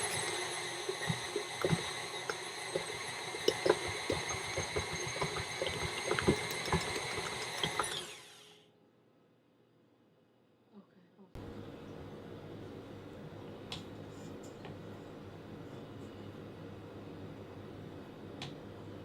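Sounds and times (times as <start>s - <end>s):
stand mixer motor whining: 0.0s - 8.5s.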